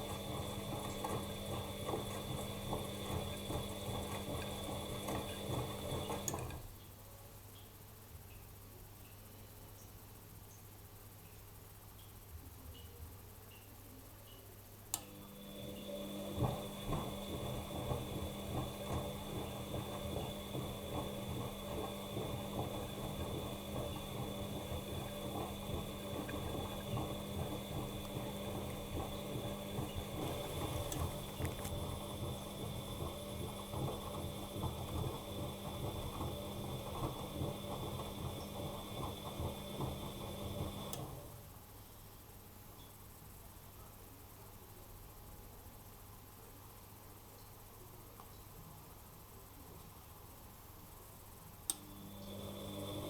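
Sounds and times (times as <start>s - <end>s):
washing machine motor humming: 0.0s - 6.7s, 14.9s - 41.6s, 51.6s - 53.0s
washing machine click: 16.0s - 41.1s
laundry tumbling rattle: 16.4s - 40.1s.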